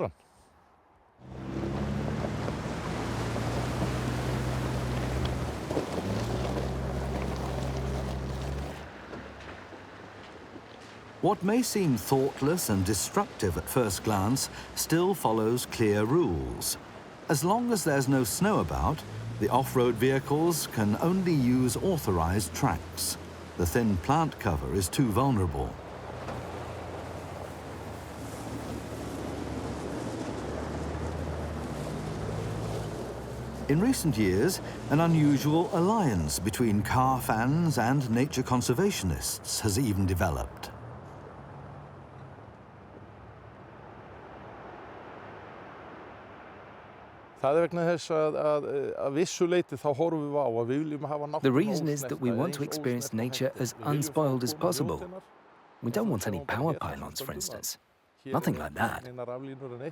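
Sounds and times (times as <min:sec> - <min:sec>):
suv engine droning: 0:01.2 - 0:09.5, 0:17.3 - 0:42.3
rough track noise: 0:01.2 - 0:16.7, 0:17.3 - 0:40.7.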